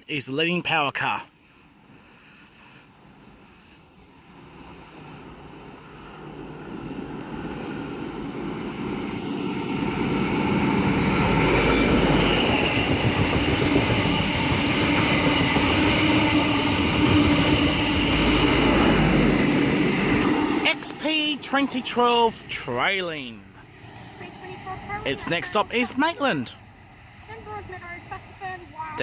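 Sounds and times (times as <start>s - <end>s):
diesel train engine: 0.0s - 29.0s
train wheels rushing and rattling: 4.2s - 26.1s.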